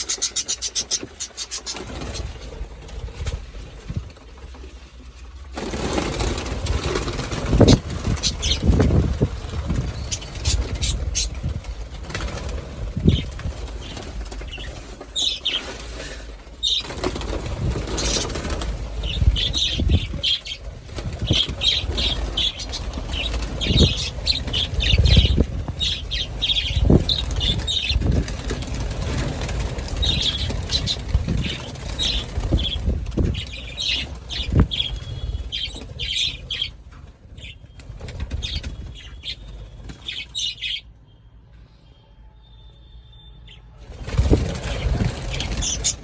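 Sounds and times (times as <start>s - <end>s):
budgerigars chirping: 0.0s - 2.5s, 7.0s - 9.2s, 9.8s - 11.6s, 12.2s - 36.8s, 37.4s - 40.8s, 44.6s - 46.0s
wings fluttering: 0.0s - 40.8s, 43.8s - 46.0s.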